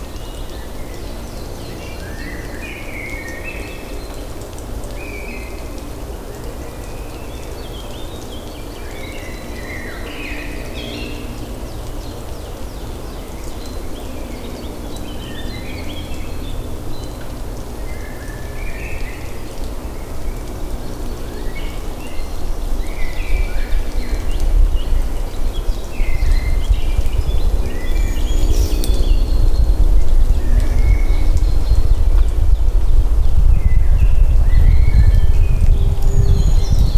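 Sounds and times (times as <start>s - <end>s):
birds chirping: 23.6s - 32.9s
low rumble: 26.0s - 36.9s.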